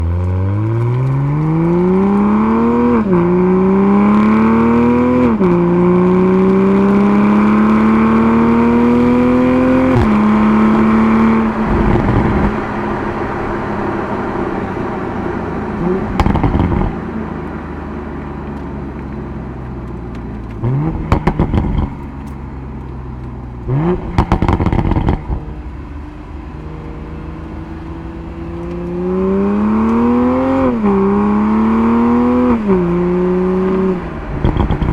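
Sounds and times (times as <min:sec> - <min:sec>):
car engine accelerating hard: 0:00.0 - 0:34.9
engine revving in bursts: 0:00.4 - 0:17.1, 0:27.0 - 0:34.9.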